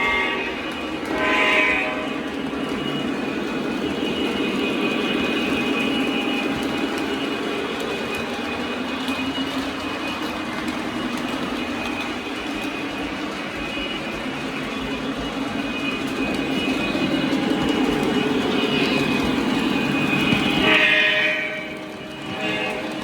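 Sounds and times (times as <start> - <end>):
train horn blast: 0.0 - 9.2, 13.6 - 23.0
model locomotive engine drone: 0.0 - 23.0
model train wheels rumbling: 0.0 - 23.0.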